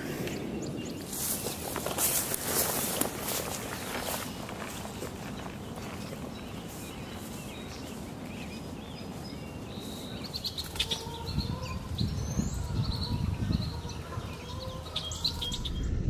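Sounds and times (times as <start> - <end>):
small birds chirping: 0.0 - 16.0
low rumble: 15.1 - 16.0.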